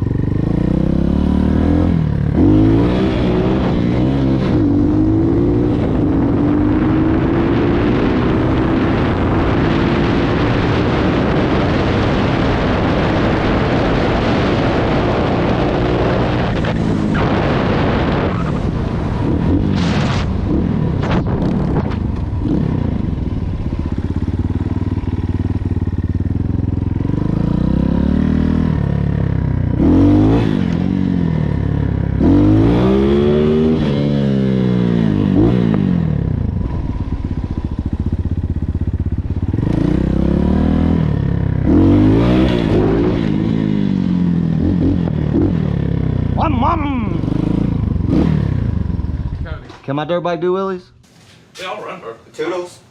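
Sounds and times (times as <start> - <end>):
dirt bike engine revving: 0.0 - 49.4.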